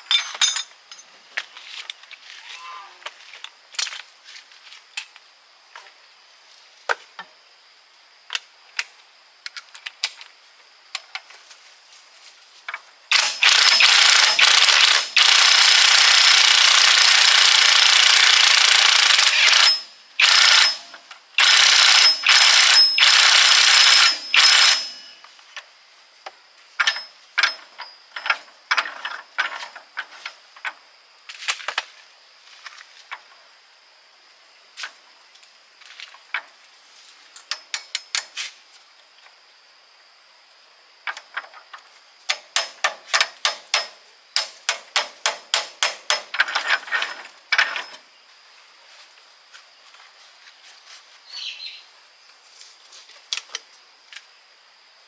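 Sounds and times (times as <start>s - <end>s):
loud power tool running: 13.1s - 25.0s.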